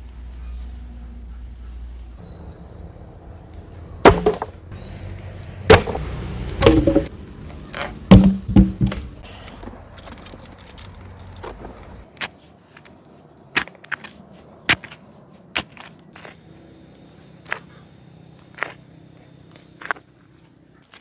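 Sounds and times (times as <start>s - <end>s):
wood being chopped: 3.6s - 7.2s, 7.8s - 9.2s.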